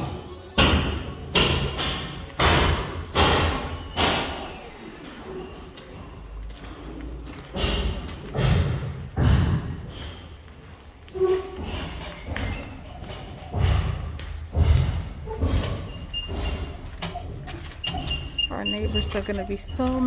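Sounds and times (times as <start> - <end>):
heavy thuds and knocks: 7.4 - 10.4, 11.4 - 20.0.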